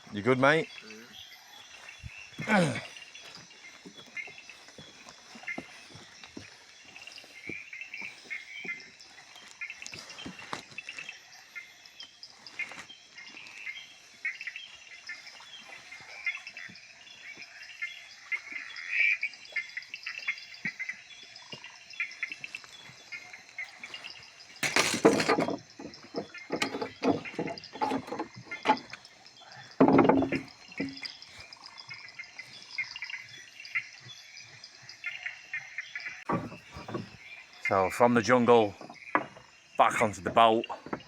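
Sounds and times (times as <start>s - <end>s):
frogs and insects trilling: 0.0s - 41.0s
loud close noises: 24.6s - 25.6s
scattered knocks: 24.6s - 29.1s, 29.8s - 31.1s, 36.3s - 37.2s, 38.7s - 41.0s.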